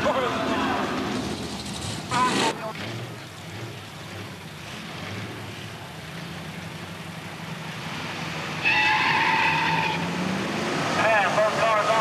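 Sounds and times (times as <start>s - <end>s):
drag car engines rumbling: 0.0s - 12.0s
high-pitched squeal: 8.6s - 10.1s.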